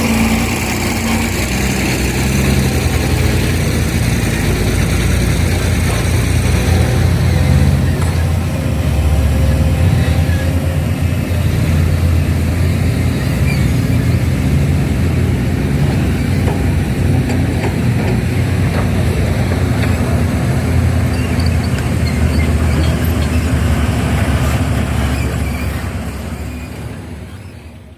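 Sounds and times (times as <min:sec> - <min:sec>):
heavy diesel engine running: 0:00.0 - 0:27.9.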